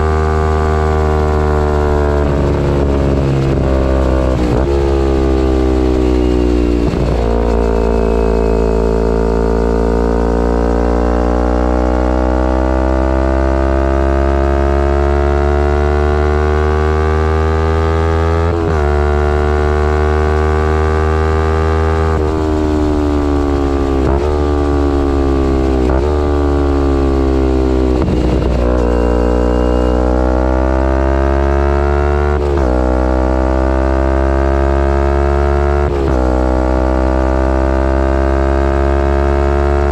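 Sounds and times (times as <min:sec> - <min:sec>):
motorcycle engine under load: 0:00.0 - 0:39.9
gear changes: 0:00.6 - 0:10.2, 0:18.4 - 0:33.2.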